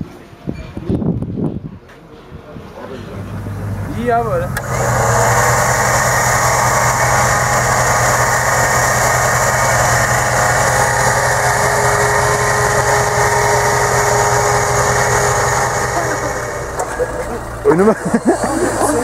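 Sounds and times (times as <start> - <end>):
off-road vehicle engine running: 3.0 - 19.0
thin steady whine: 3.0 - 19.0.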